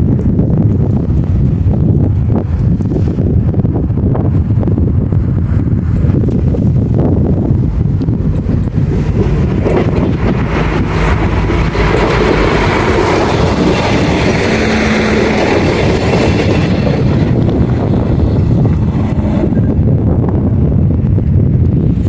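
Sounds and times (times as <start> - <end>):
wind buffeting microphone: 0.0 - 22.0
train passing: 3.8 - 21.3.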